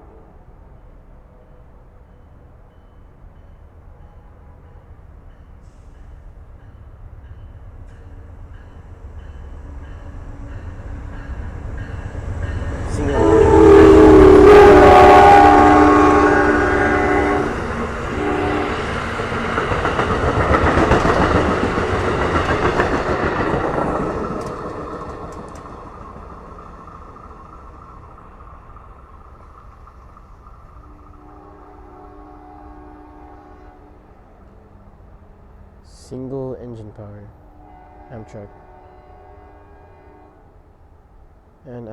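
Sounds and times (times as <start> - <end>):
rumble of train passing: 0.0 - 41.9
train horn blast: 9.6 - 19.4, 30.8 - 34.2, 37.5 - 40.6.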